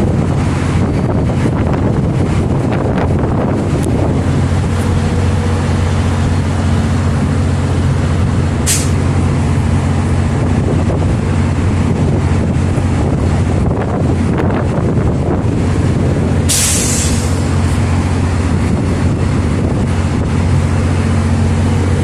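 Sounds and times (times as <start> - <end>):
diesel locomotive engine drone: 0.0 - 22.0
air hiss: 8.6 - 9.0, 16.5 - 17.6.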